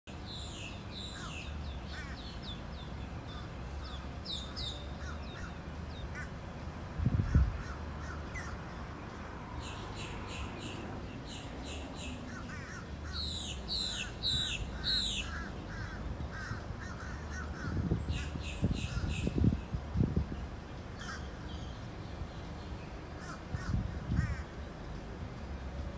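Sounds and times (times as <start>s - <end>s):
steady low rumble: 1.0s - 25.9s
birds calling sharp falling calls: 9.6s - 19.3s.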